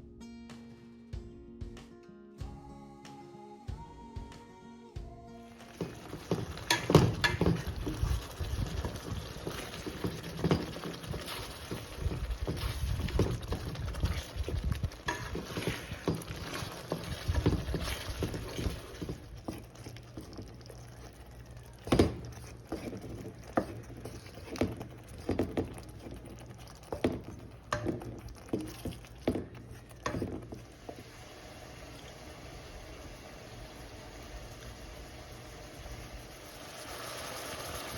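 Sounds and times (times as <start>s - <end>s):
food simmering: 5.5s - 37.9s
spatula scraping a pot: 5.7s - 30.9s.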